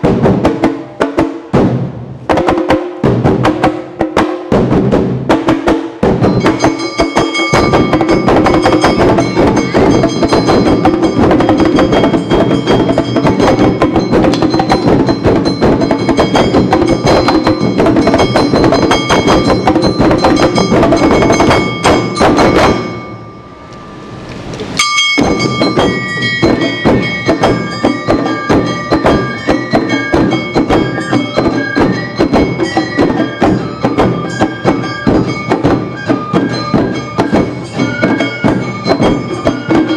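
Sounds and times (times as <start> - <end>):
fast dense drumming: 0.0 - 23.2, 25.2 - 39.9
high flute melody: 25.2 - 39.9.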